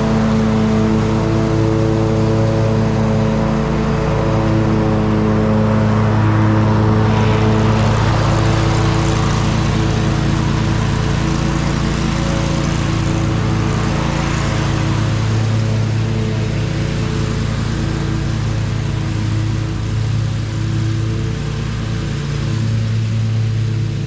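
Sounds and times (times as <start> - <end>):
lawn mower engine running: 0.0 - 24.0
rushing noise: 5.6 - 11.0.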